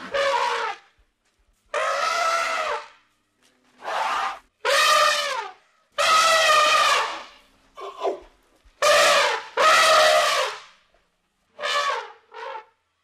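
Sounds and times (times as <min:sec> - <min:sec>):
elephant trumpeting: 0:00.0 - 0:00.8, 0:01.7 - 0:02.9, 0:03.8 - 0:08.2, 0:08.8 - 0:10.6.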